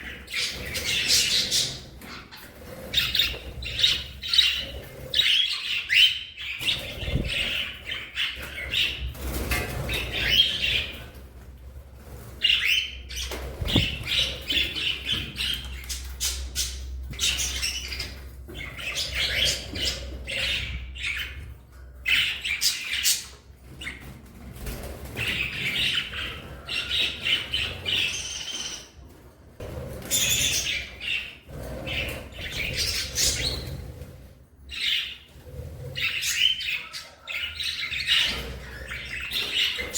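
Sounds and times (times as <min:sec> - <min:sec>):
budgies chirping and chattering: 0:00.0 - 0:39.9.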